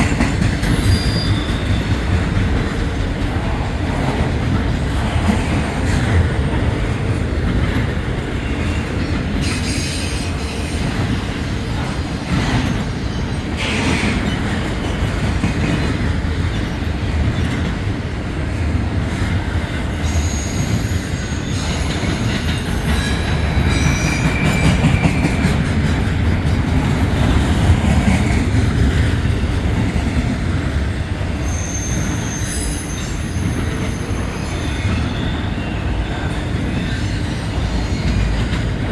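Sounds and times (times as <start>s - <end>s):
wheels clicking over rail joints: 0.0s - 18.0s
freight train cars rumbling: 0.0s - 38.9s
high wheel squeals: 0.6s - 2.4s, 8.4s - 14.4s, 20.0s - 25.9s, 31.2s - 38.4s.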